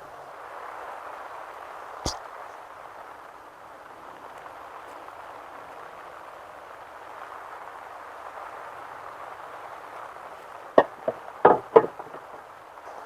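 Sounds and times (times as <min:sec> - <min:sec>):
steady rain: 0:00.0 - 0:13.0
sharp knocks: 0:11.5 - 0:12.1.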